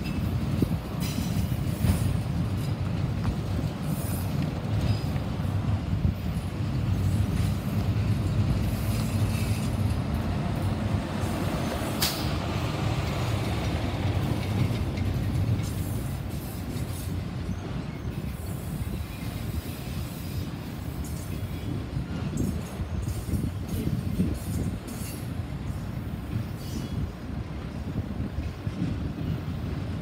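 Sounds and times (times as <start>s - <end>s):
train cars rumbling on rails: 0.0s - 30.0s.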